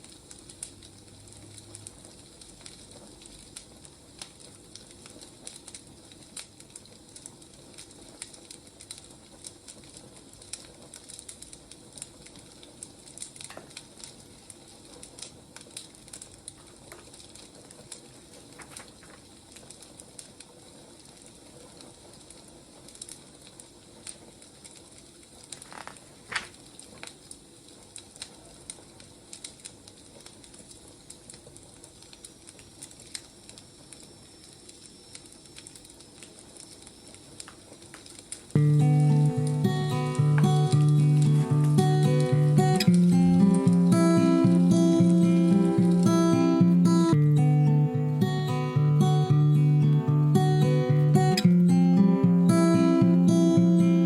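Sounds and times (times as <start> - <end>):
fire snapping: 0.0 - 54.0
wood fire crackling: 0.0 - 54.0.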